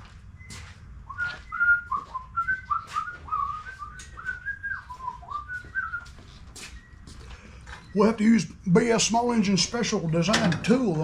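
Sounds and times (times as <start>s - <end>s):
man whistling a tune: 0.4s - 7.1s.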